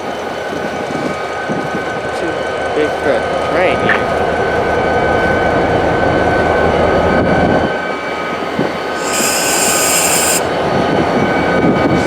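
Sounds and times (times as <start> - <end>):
sharp hiss: 8.9 - 10.5
thin high tone: 9.0 - 10.5.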